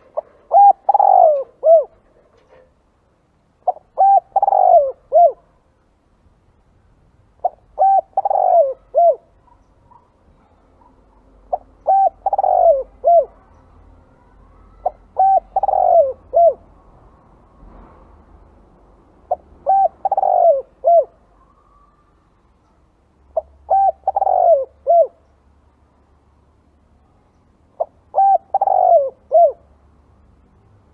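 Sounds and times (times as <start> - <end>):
dove cooing: 0.0 - 2.6, 3.6 - 5.6, 7.4 - 10.1, 10.8 - 13.5, 14.1 - 16.7, 19.3 - 22.0, 23.3 - 25.2, 27.8 - 29.7.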